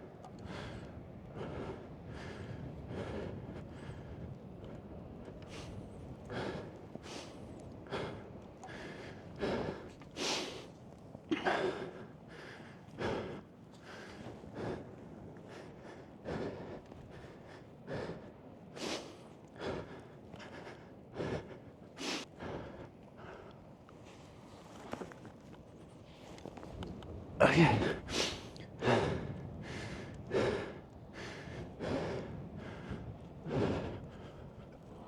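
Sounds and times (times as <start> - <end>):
man gasping breaths: 27.4 - 35.0.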